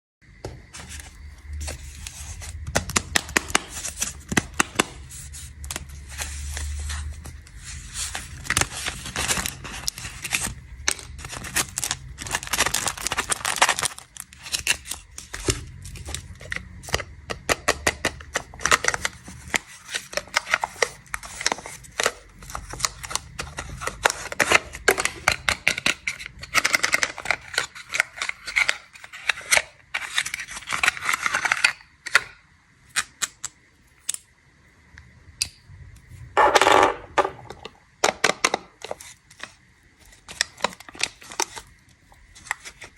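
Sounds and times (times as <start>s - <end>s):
plastic wrapper crinkling: 0.7s - 17.0s, 38.8s - 42.9s.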